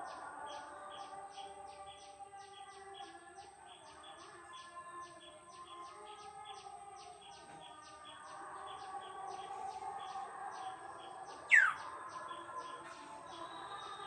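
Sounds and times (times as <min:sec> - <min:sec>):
birds chirping: 0:00.0 - 0:14.0
bird call sweeping downward: 0:11.5 - 0:11.8.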